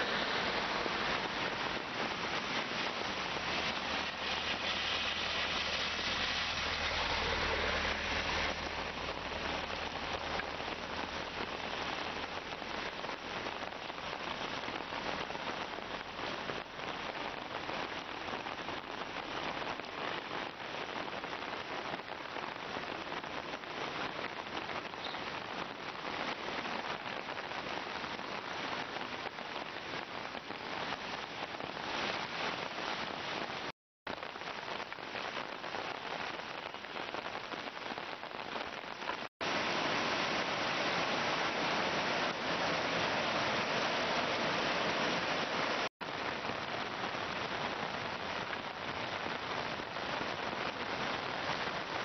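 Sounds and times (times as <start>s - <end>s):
steady rain hiss: 0.0s - 52.0s.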